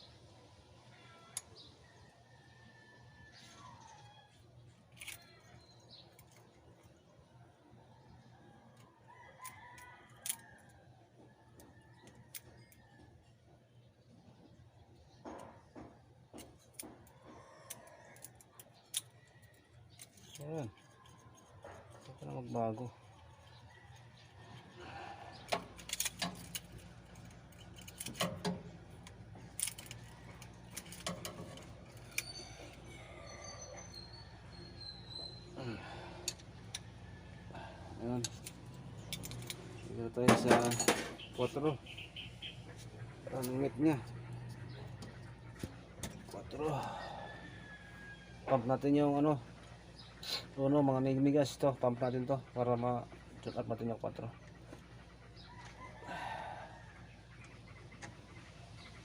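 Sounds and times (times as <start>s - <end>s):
faint rooster crowing: 0.8s - 5.6s, 7.8s - 13.4s, 16.8s - 39.8s, 42.7s - 49.4s, 54.8s - 57.9s
metal hand tools clinking: 40.3s - 41.2s.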